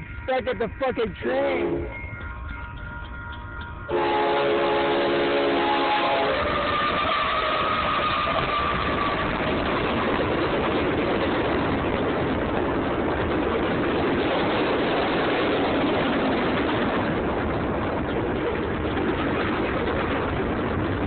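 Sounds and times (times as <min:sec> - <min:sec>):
train cars rumbling on rails: 0:00.0 - 0:21.0
train horn: 0:03.9 - 0:09.7.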